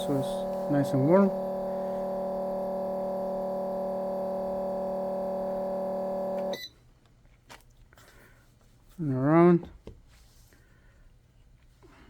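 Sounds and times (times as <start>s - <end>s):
electrical heater humming: 0.0s - 6.7s.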